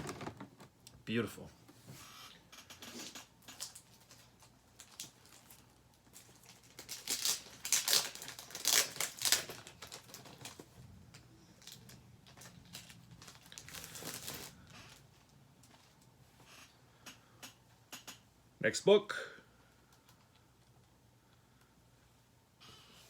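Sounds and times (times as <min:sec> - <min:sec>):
plastic packaging crinkling: 0:03.1 - 0:16.1.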